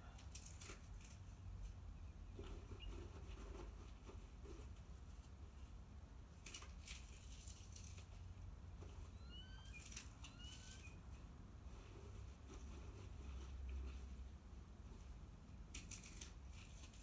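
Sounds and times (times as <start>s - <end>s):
scratchy rustling: 0.3s - 5.7s, 6.4s - 11.0s, 11.6s - 17.0s
faint bird chirps: 9.1s - 11.0s.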